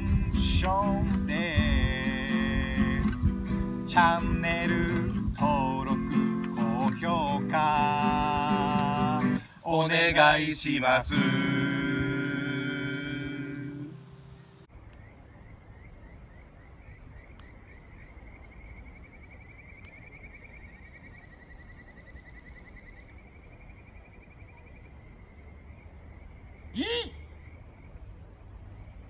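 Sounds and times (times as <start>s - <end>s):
music: 0.0s - 9.4s
steady high whine: 3.0s - 14.7s.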